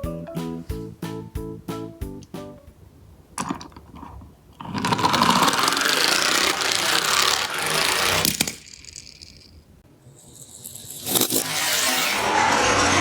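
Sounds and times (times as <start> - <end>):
toy truck wheels rattling: 3.4 - 12.2.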